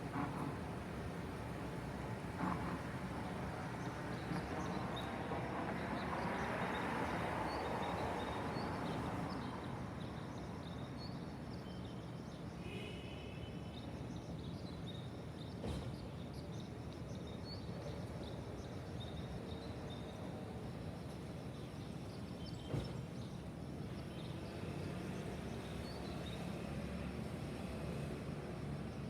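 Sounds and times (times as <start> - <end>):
distant traffic hum: 0.0 - 9.8.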